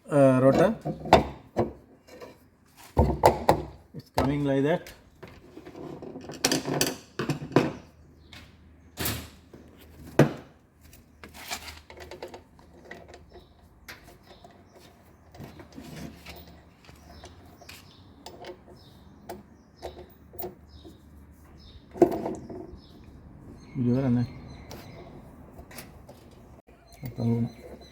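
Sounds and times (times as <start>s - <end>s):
motor parts knocking and clunking: 0.5s - 1.9s, 11.8s - 21.0s, 21.6s - 23.2s.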